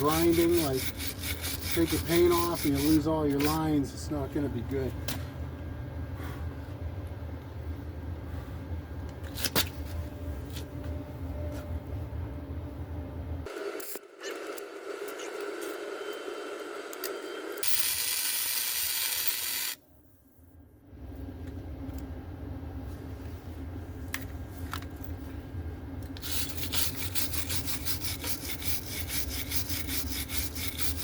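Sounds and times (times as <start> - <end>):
rasping strokes: 0.0 - 3.9, 26.3 - 31.0
steady low hum: 0.0 - 14.2, 19.1 - 31.0.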